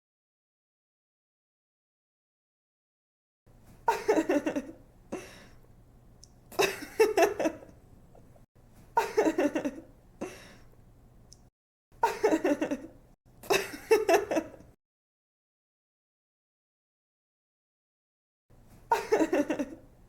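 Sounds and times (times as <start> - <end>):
young woman laughing: 3.9 - 5.3, 6.5 - 7.8, 9.0 - 9.9, 12.0 - 14.7, 18.9 - 19.9.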